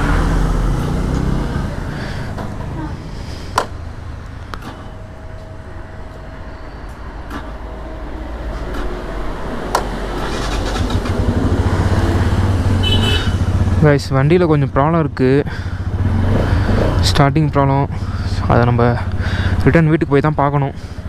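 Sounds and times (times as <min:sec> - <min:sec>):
motorcycle engine running: 0:09.6 - 0:20.0.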